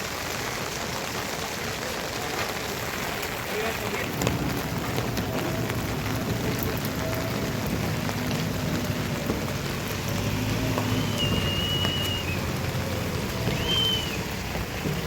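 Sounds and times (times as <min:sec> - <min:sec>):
water rushing: 0:00.0 - 0:15.0
faint high whistle tone: 0:10.8 - 0:12.4, 0:13.4 - 0:14.3.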